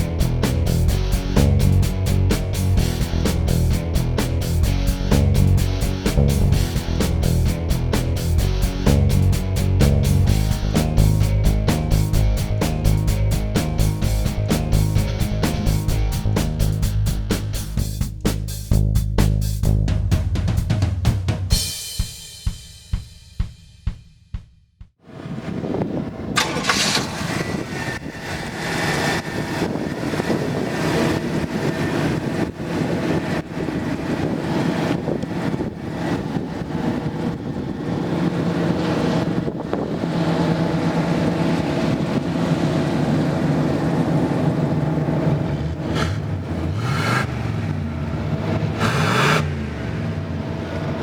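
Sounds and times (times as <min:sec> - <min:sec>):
car engine starting and idling: 0:00.0 - 0:20.4, 0:26.2 - 0:34.2, 0:36.7 - 0:51.0
drum-heavy music: 0:00.0 - 0:25.0.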